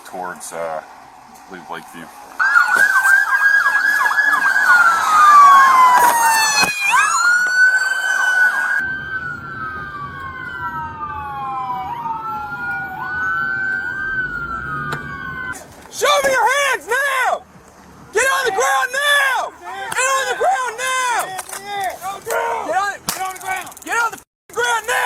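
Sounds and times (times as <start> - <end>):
police siren: 1.0 - 15.6.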